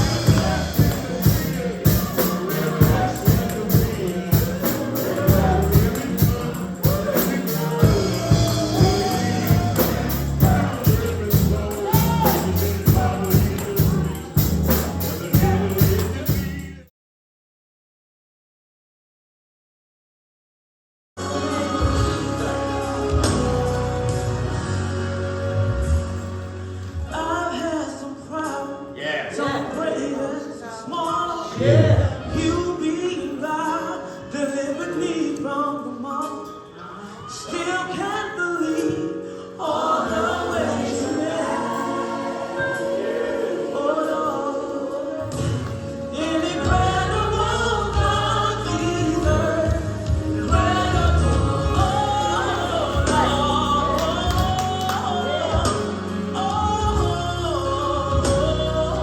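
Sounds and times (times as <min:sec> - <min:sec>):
strong bass: 0:00.0 - 0:16.8
gospel voices singing: 0:00.0 - 0:16.9, 0:21.2 - 0:59.0
instrumental accompaniment: 0:00.0 - 0:16.9.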